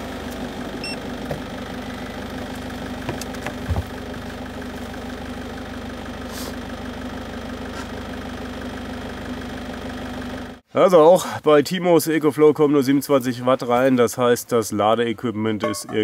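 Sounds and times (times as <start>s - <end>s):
diesel engine idling: 0.0s - 10.6s.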